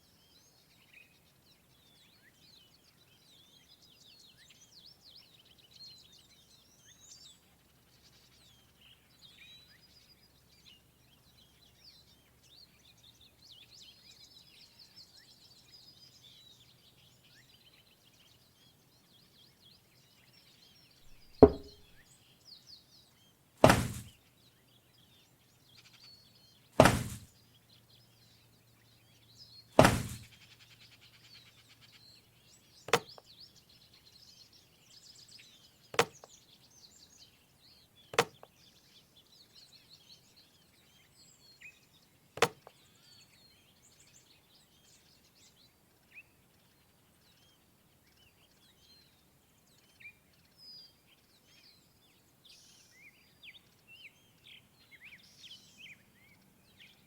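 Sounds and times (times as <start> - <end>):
heavy knocks: 21.1 - 21.9, 23.6 - 24.1, 26.8 - 27.3, 29.8 - 30.3
faint bird chirping: 23.8 - 57.0.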